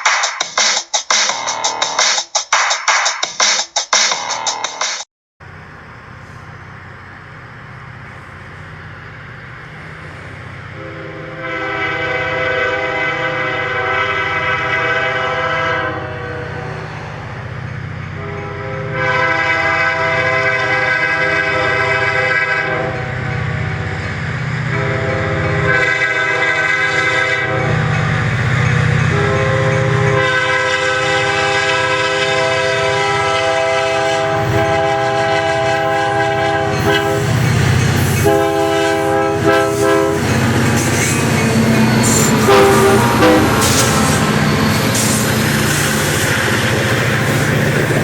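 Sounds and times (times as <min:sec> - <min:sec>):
diesel engines rumbling: 0:05.4 - 0:48.0
locomotive air horn blasts: 0:10.7 - 0:16.9, 0:18.2 - 0:23.2, 0:24.7 - 0:27.8, 0:29.0 - 0:37.3, 0:38.2 - 0:45.0
train wheels rolling over rails: 0:16.4 - 0:48.0.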